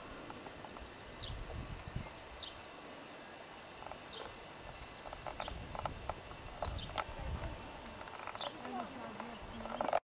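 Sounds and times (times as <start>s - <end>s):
small bird calling: 0.7s - 2.7s, 3.9s - 5.8s, 6.6s - 7.2s, 7.8s - 10.0s.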